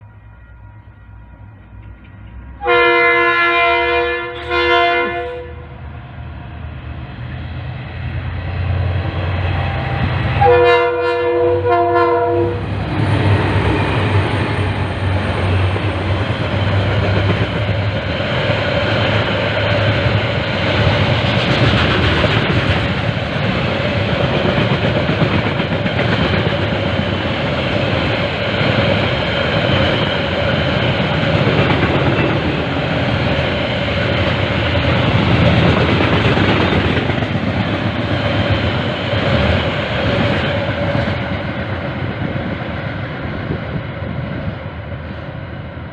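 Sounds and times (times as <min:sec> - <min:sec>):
freight train rumble: 0:00.0 - 0:45.9
locomotive horn toots: 0:02.6 - 0:05.8, 0:10.4 - 0:12.7.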